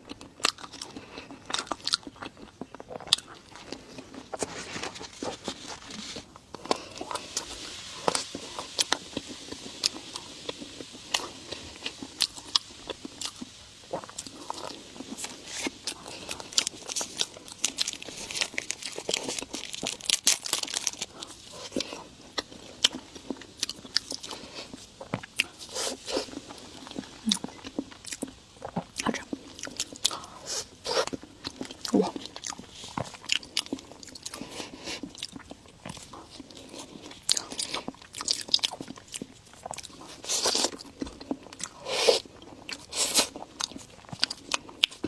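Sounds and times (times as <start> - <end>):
biting and chewing: 0.0 - 7.5, 8.1 - 45.0
wet mouth sounds: 21.0 - 45.0.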